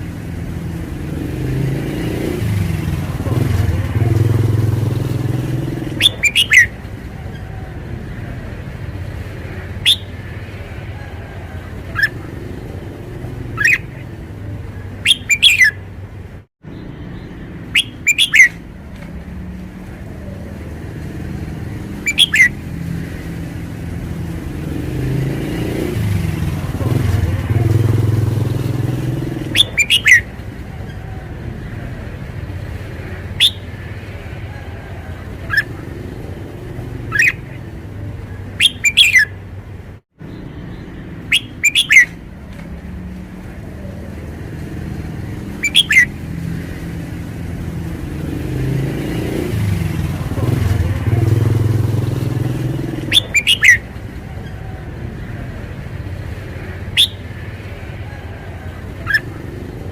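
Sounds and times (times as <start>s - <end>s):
bird whistling: 5.4s - 7.6s, 9.5s - 10.4s, 11.0s - 12.8s, 13.4s - 14.2s, 15.0s - 15.9s, 17.2s - 18.6s, 21.9s - 22.6s, 28.6s - 31.2s, 33.3s - 33.8s, 34.5s - 36.4s, 37.0s - 37.6s, 38.5s - 39.4s, 41.2s - 42.2s, 45.4s - 46.2s, 52.4s - 55.3s, 56.8s - 59.9s.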